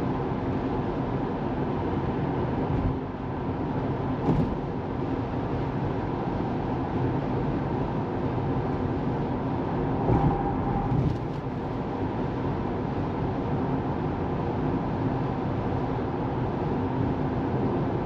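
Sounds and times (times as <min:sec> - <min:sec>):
car road and tyre noise: 0:00.0 - 0:18.0
car bump: 0:04.2 - 0:04.8.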